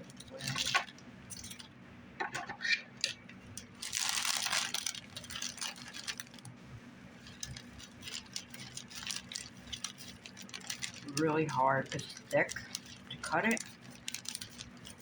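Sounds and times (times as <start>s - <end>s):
basket grass crinkling and rustling: 3.7s - 6.5s, 7.2s - 15.0s.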